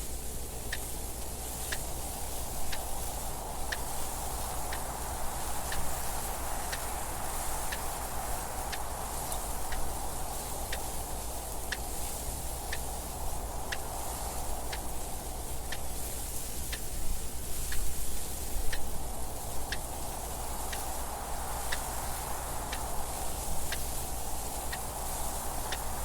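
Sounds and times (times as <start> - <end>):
rushing wind: 0.0 - 26.0
clock ticking: 16.7 - 17.0, 21.7 - 22.9, 24.7 - 26.0.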